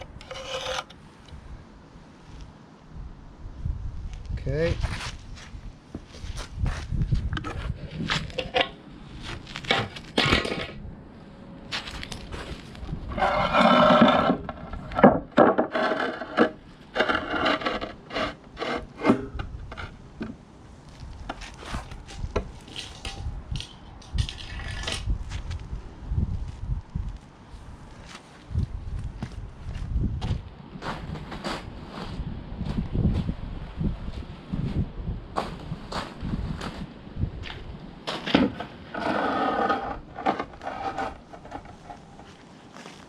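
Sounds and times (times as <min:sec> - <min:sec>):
tool scraping on concrete: 0:00.0 - 0:01.4, 0:13.1 - 0:20.0, 0:21.3 - 0:25.1, 0:38.2 - 0:43.0.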